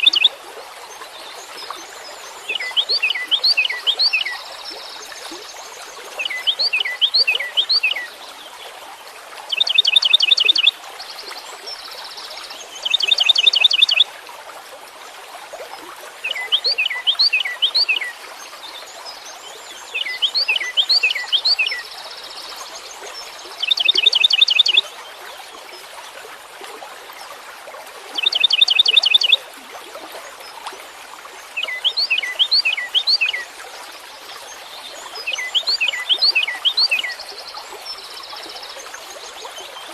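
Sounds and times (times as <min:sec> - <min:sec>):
songbird singing: 0:00.0 - 0:00.3, 0:01.8 - 0:05.6, 0:06.2 - 0:08.1, 0:09.5 - 0:10.7, 0:12.6 - 0:14.0, 0:16.2 - 0:18.2, 0:19.1 - 0:22.5, 0:23.2 - 0:24.8, 0:28.2 - 0:29.4, 0:31.5 - 0:33.5, 0:34.5 - 0:39.8.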